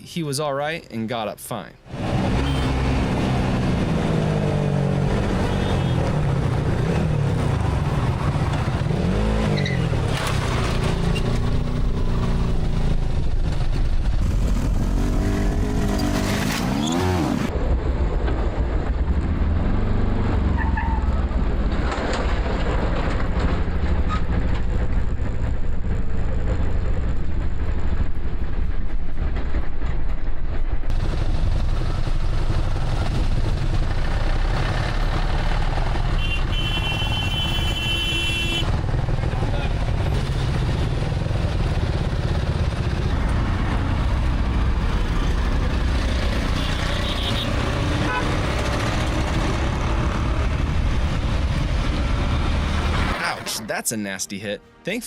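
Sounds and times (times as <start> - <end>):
road noise: 0.0 - 55.0
engine revving: 1.9 - 17.6, 30.9 - 53.6.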